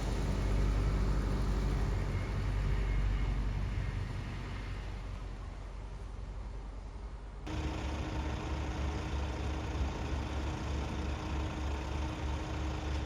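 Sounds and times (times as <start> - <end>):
vehicle engine idling: 0.0 - 3.0, 7.5 - 13.0.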